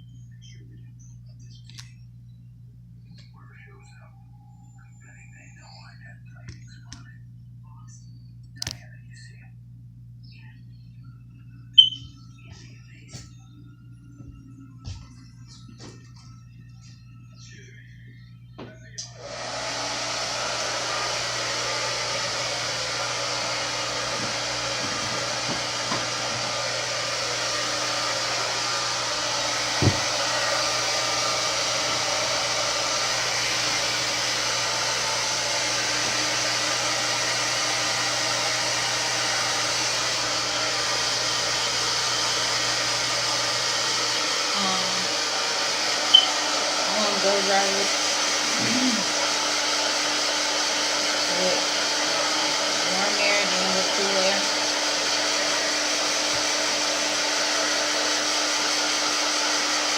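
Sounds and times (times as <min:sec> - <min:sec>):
blow dryer running: 0:18.5 - 0:59.9.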